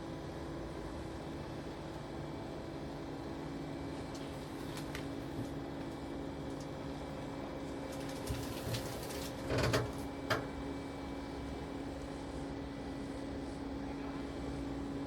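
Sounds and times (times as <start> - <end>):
engine idling hum: 0.0 - 15.0.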